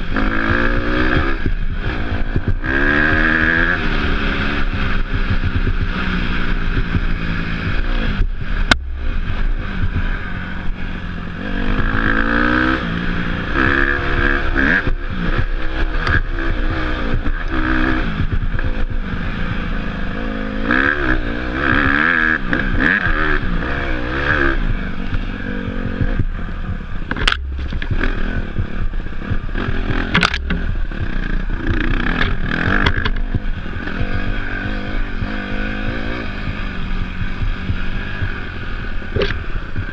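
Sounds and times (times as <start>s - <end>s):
dirt bike engine revving: 0.0s - 39.9s
sharp knocks: 8.6s - 10.1s, 29.3s - 31.2s.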